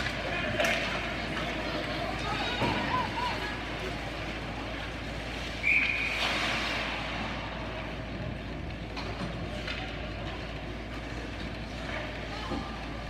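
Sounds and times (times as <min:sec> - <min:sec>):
ice rink background noise: 0:00.0 - 0:13.0
referee's whistle: 0:05.6 - 0:06.2.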